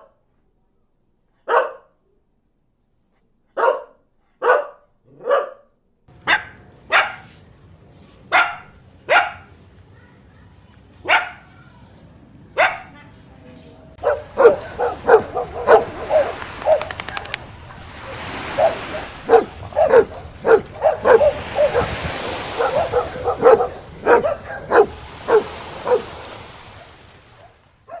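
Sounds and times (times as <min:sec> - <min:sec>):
dog barking sharply: 0:01.5 - 0:01.9, 0:03.6 - 0:07.3, 0:08.3 - 0:09.5, 0:11.0 - 0:11.5, 0:12.6 - 0:12.9, 0:14.0 - 0:28.0.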